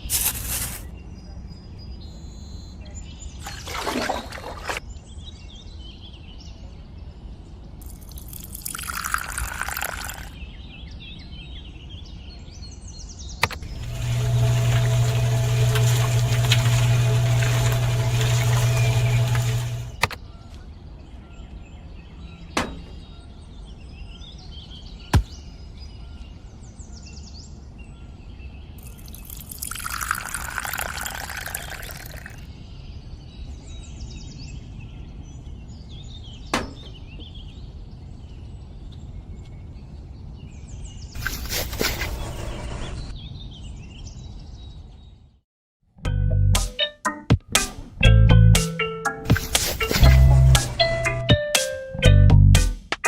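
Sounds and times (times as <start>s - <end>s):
birds chirping: 0.0s - 45.3s
sharp clicks: 13.4s - 13.7s.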